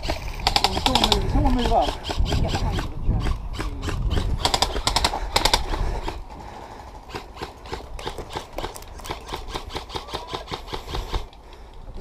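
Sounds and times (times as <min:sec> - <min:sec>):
wind rumble on microphone: 0:00.0 - 0:06.3.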